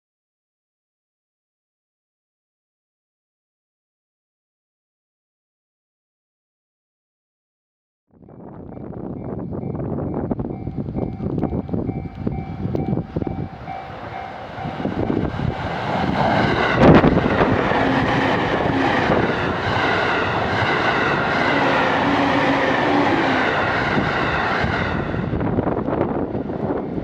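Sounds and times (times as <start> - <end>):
train wheels on rails: 8.4 - 27.0.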